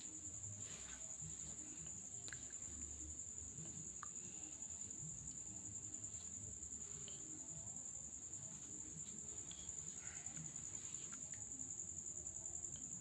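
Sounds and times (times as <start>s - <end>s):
insects chirping: 0.0s - 13.0s
faint small clicks: 2.2s - 2.7s.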